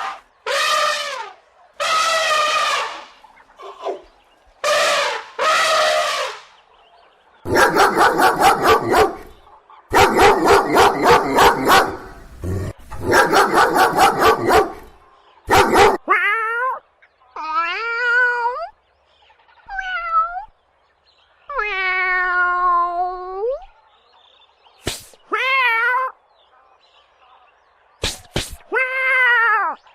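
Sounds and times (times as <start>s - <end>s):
dog barking: 7.5s - 12.2s, 13.0s - 16.1s.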